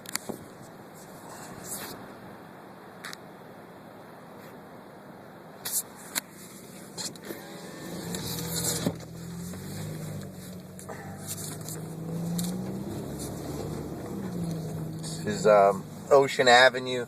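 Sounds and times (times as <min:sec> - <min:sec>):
road noise: 0:00.0 - 0:17.0
car engine running: 0:07.2 - 0:16.9.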